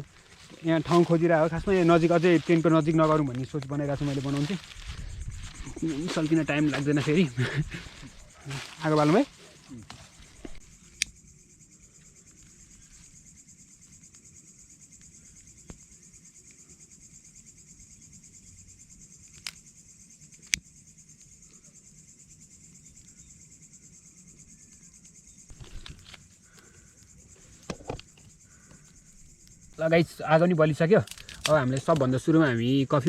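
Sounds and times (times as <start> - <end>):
insects chirring: 0.0 - 33.0
sharp clicks: 10.4 - 11.2.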